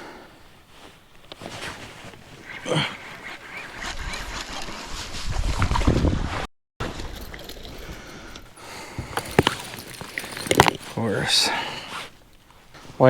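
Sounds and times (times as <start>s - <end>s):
wind buffeting microphone: 2.4s - 6.5s.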